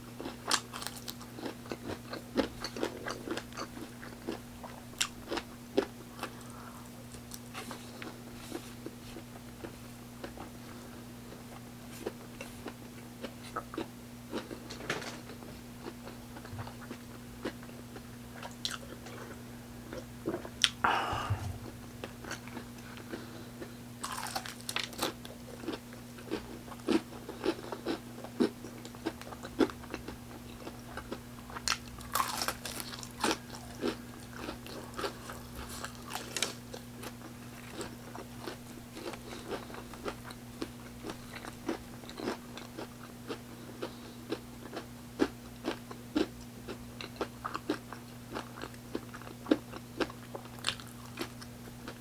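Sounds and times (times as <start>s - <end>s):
crunching fried chicken: 0.2s - 10.5s, 22.1s - 52.0s
wet chewing and smacking: 0.2s - 10.5s, 18.4s - 20.8s, 22.0s - 52.0s
low hum: 18.3s - 24.0s.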